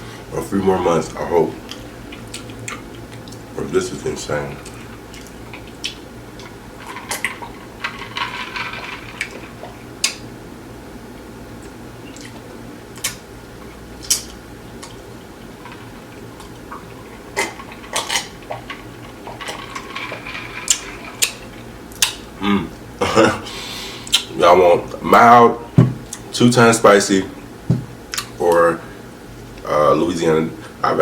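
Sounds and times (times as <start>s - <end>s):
low room hum: 0.0s - 31.0s.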